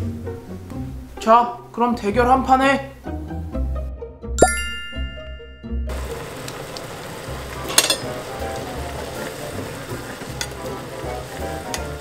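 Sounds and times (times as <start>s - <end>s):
noodles sizzling in a pot: 5.9s - 12.0s.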